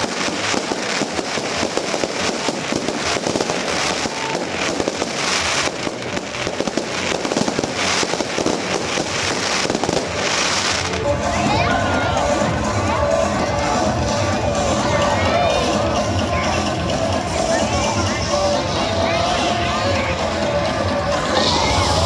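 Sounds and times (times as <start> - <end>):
dense crackling and popping: 0.0 - 11.0
hissing swells: 21.2 - 22.0.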